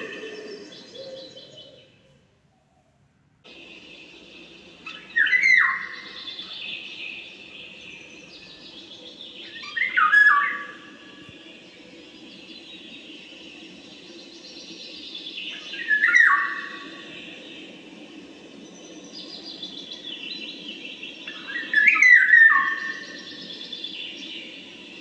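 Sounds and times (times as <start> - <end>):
bird calling: 0.0 - 2.0, 4.1 - 11.2, 21.1 - 24.2
background noise: 0.0 - 25.0.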